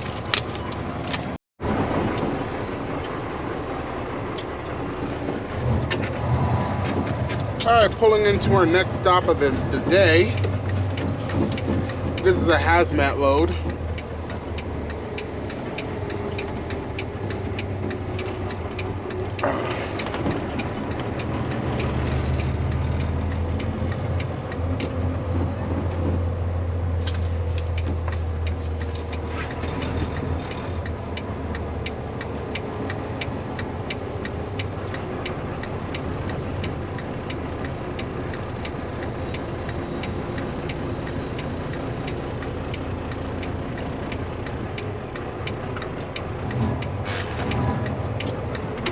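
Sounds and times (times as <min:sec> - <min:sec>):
diesel truck engine rumble: 0:00.0 - 0:48.9
quick steady ticking: 0:07.3 - 0:48.9.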